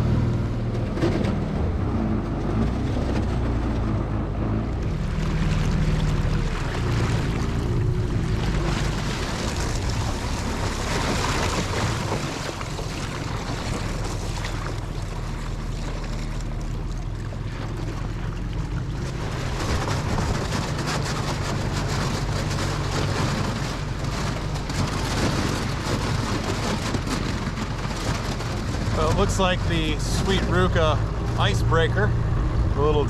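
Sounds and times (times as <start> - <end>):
outboard motor running: 0.0 - 33.0
ice crackling: 19.6 - 27.2
water and ice rushing hiss: 19.9 - 26.8.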